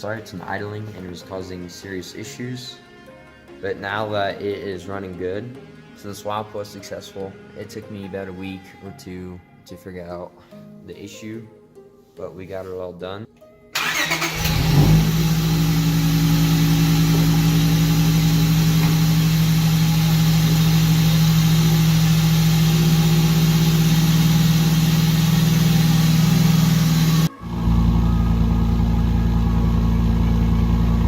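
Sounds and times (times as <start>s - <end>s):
car engine idling: 13.8s - 31.0s.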